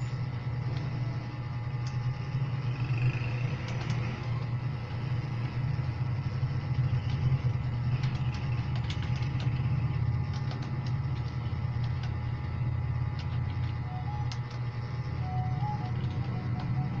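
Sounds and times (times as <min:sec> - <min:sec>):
steady low hum: 0:00.0 - 0:17.0
keyboard typing: 0:03.2 - 0:04.4, 0:06.6 - 0:12.2, 0:13.1 - 0:17.0.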